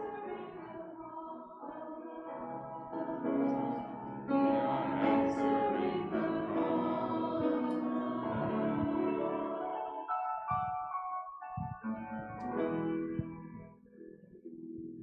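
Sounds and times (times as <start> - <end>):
choir singing held chords: 0.0 - 10.8.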